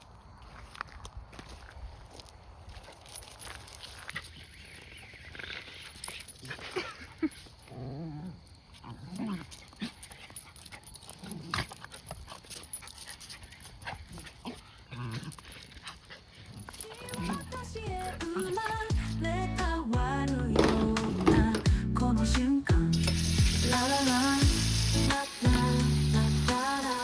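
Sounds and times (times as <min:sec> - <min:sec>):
rustling: 0:08.7 - 0:18.9.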